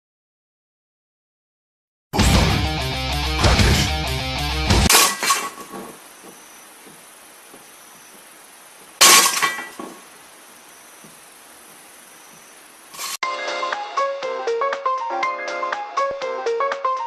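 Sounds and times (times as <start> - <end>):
music: 2.2 - 4.9, 13.2 - 17.0
brittle object smashing: 4.9 - 6.0, 9.0 - 9.9.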